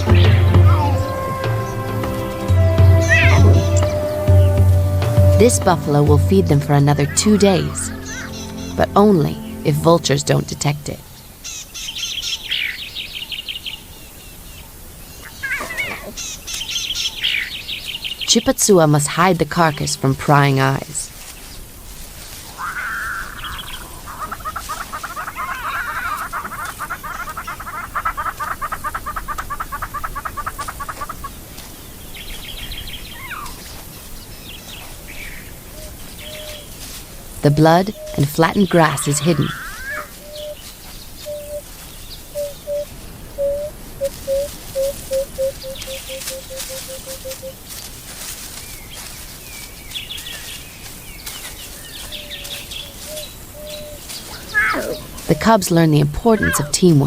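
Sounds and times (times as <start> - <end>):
bird chirps: 0.0 - 5.6, 6.4 - 36.8, 37.4 - 57.0
steady background hiss: 0.0 - 57.0
bird rapid cackling call: 7.1 - 8.8, 15.2 - 17.5, 22.4 - 31.5, 37.9 - 40.6, 42.3 - 47.6, 52.2 - 55.4.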